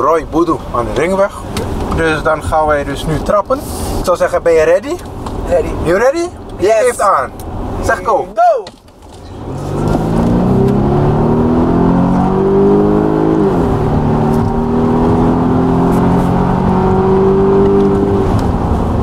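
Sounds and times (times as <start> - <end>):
car engine accelerating: 9.2 - 19.0.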